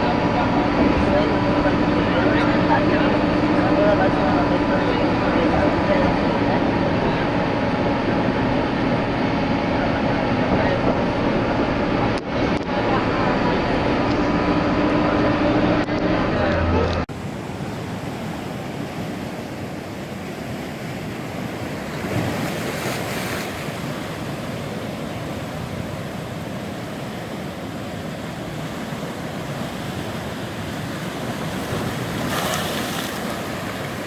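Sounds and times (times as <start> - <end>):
ocean waves: 0.0 - 34.0
wind: 0.0 - 34.0.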